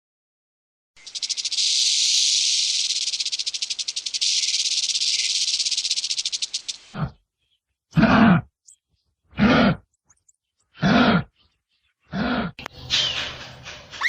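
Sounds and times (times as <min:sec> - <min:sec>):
animal rattling buzz: 0:01.0 - 0:07.0.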